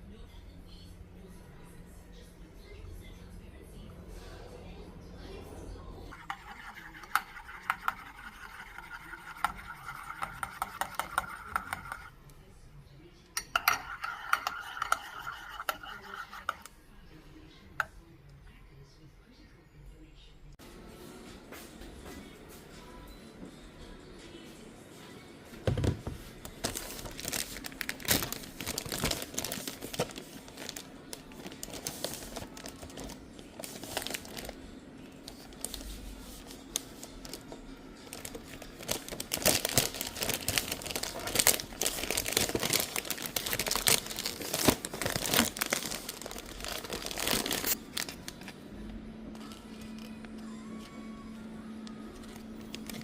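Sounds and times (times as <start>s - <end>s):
faint steady hum: 26.3s - 53.0s
packaging crinkling and rustling: 26.4s - 34.6s, 35.2s - 48.6s, 52.2s - 53.0s.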